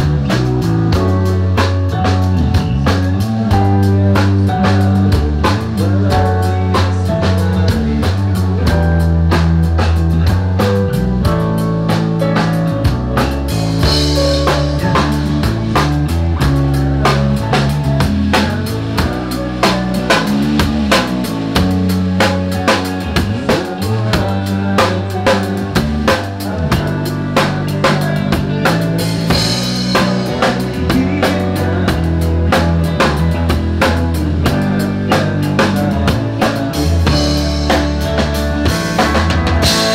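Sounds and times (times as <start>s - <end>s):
drum kit beat: 0.0s - 39.9s
rock band playing live: 0.0s - 39.9s.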